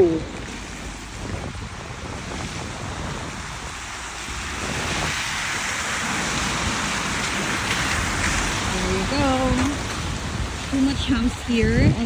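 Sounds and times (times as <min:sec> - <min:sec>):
hiss of wet road and rain: 0:00.0 - 0:11.7
wind rushing over microphone: 0:00.0 - 0:12.0.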